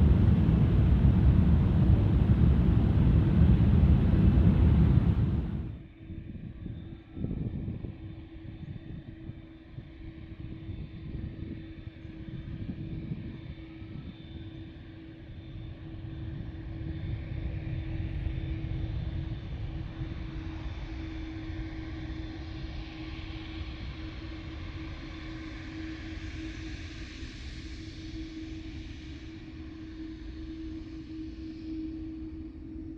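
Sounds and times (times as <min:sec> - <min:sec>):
jet engines rumbling and whining: 0:00.0 - 0:05.9.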